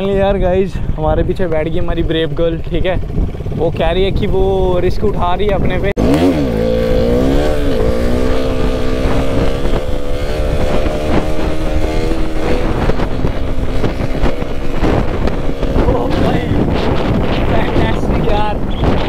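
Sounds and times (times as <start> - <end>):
wind noise: 0.0 - 19.0
motorcycle engine at high revs: 5.5 - 19.0.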